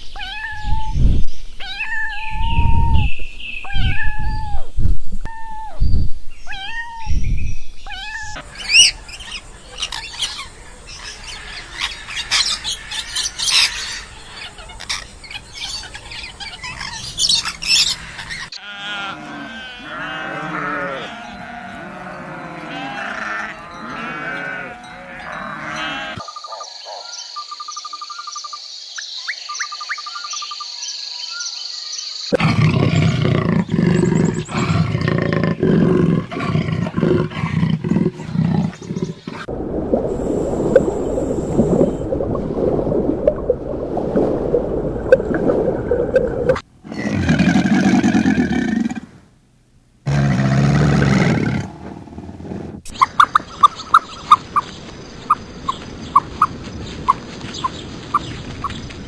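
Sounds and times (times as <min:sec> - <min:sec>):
rough roaring: 0:50.1 - 0:52.8.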